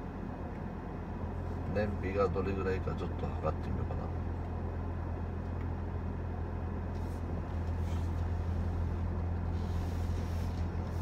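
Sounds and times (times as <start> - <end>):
car engine low drone: 0.0 - 11.0.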